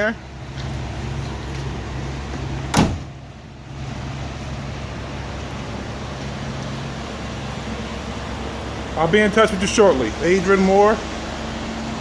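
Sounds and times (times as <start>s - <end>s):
truck latching clunk: 2.3s - 3.3s.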